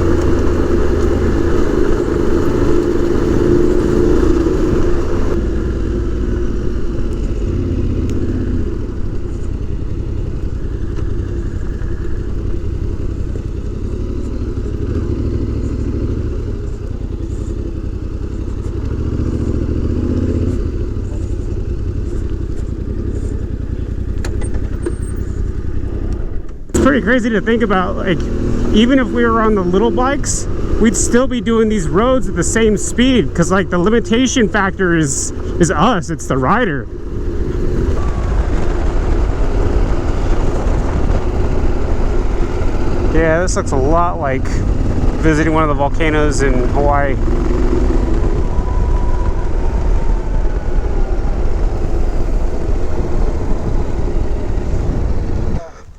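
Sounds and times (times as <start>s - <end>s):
motorcycle engine running: 0.0s - 55.9s
wind noise on microphone: 36.5s - 55.9s.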